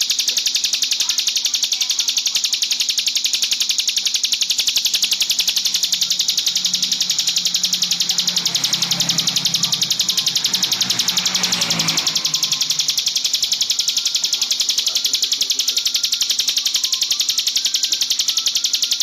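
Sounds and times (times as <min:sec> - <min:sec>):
high pulsed bird trill: 0:00.0 - 0:19.0.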